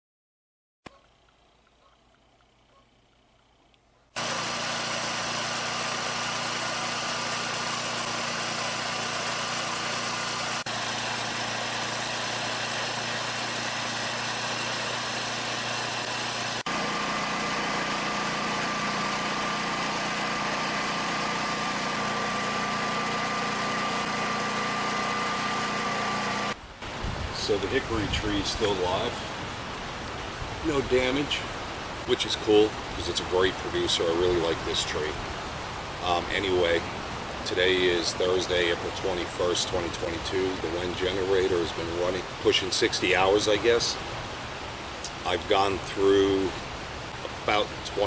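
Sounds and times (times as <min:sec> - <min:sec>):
generator engine running: 0:00.9 - 0:29.4.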